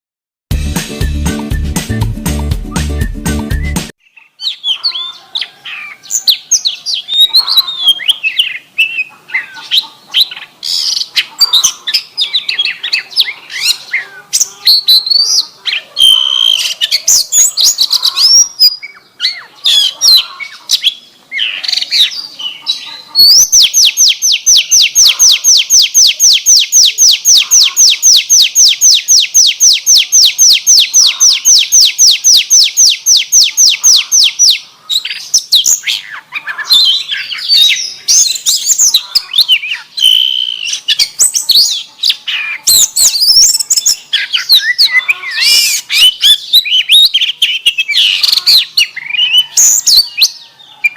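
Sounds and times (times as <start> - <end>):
songbird singing varied whistles: 0.9 - 5.2, 16.0 - 20.2, 23.2 - 50.9
bird trill: 2.7 - 50.9.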